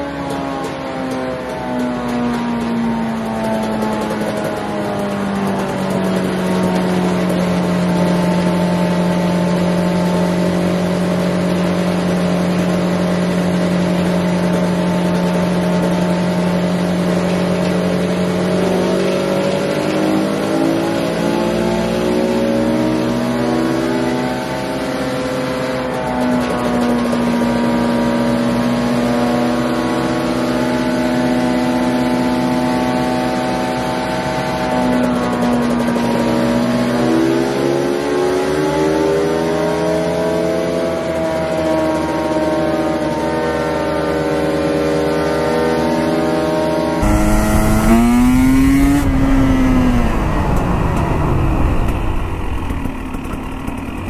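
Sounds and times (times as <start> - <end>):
two-stroke engine revving: 3.1 - 30.8, 47.0 - 54.0
wind noise: 47.0 - 54.0.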